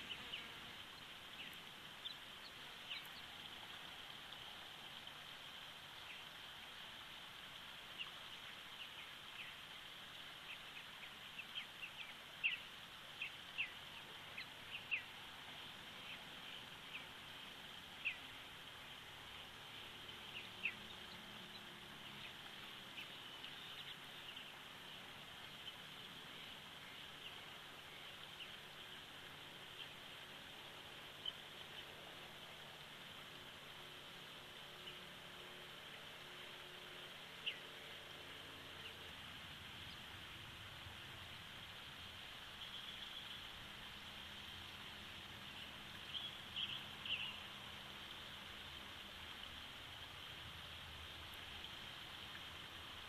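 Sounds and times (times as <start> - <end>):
faint hiss: 0.0 - 53.0.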